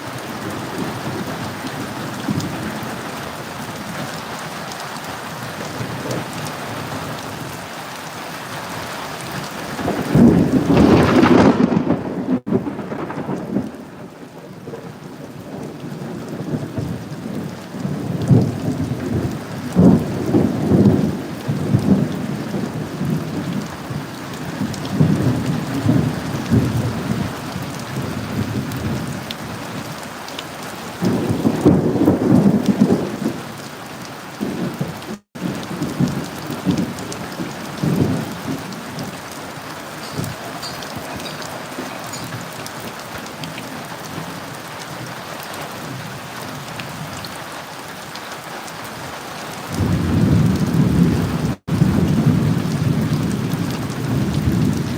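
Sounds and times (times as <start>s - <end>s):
steady rain: 0.0s - 54.9s
thunder clap and rumbles: 0.2s - 3.0s, 9.6s - 14.7s, 15.6s - 30.0s, 30.9s - 33.6s, 34.4s - 44.6s, 49.7s - 54.9s.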